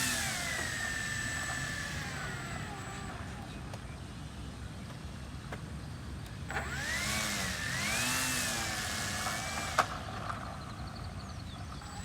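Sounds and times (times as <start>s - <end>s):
model plane motor whine: 0.0s - 3.8s, 6.5s - 12.0s.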